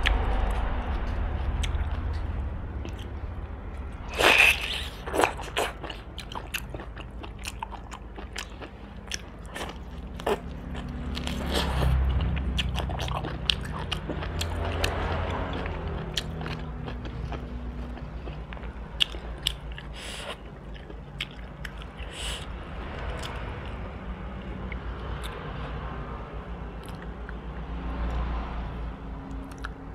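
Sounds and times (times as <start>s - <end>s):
low background hum: 0.0s - 29.9s
crisp biting and chewing: 4.1s - 22.2s.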